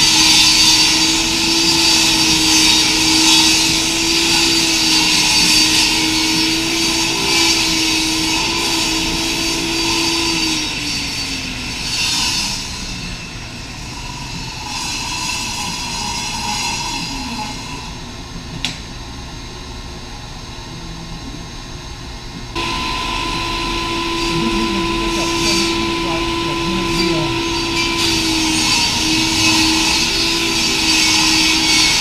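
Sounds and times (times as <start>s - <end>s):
table saw whine: 0.0s - 17.9s, 22.6s - 32.0s
blade cutting plywood: 22.6s - 32.0s.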